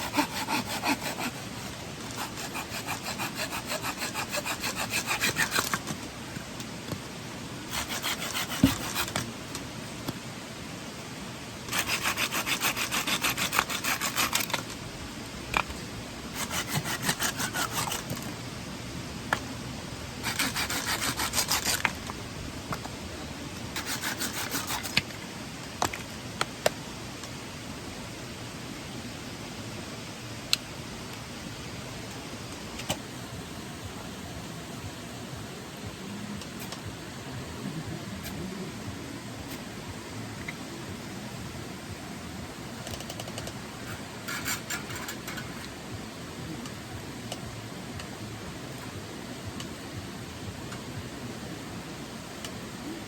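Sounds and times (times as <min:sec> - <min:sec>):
hand saw cutting wood: 0:00.0 - 0:06.0, 0:07.7 - 0:09.3, 0:11.7 - 0:14.7, 0:16.4 - 0:18.2, 0:20.2 - 0:22.0, 0:23.8 - 0:25.0.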